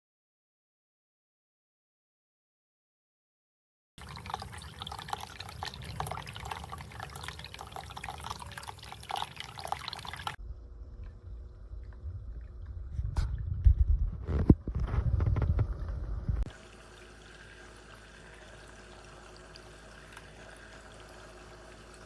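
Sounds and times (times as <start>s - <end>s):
fountain water trickling: 4.0s - 12.8s, 16.5s - 22.0s
small water splashes: 4.0s - 13.4s
dull low water sound: 4.0s - 22.0s
faint steady hum: 4.0s - 22.0s.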